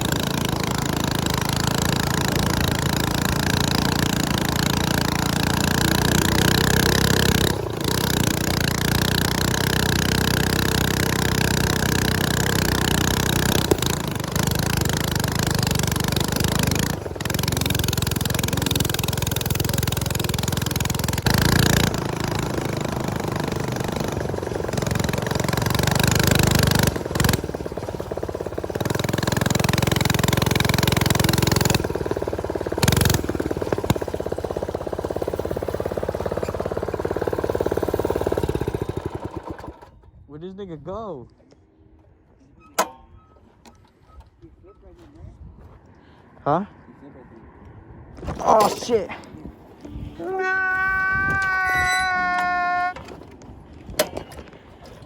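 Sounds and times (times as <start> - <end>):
small motorcycle engine running: 0.0 - 40.2, 49.8 - 55.0
wind noise on microphone: 45.2 - 45.7.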